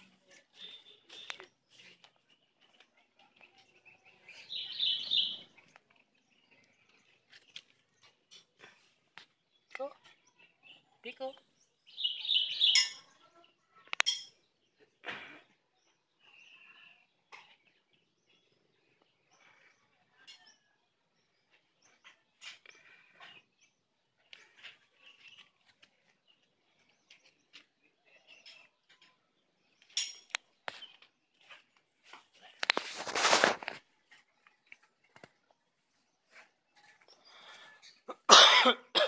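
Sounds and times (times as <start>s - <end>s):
high bird chirps: 4.1s - 5.8s, 11.8s - 13.2s.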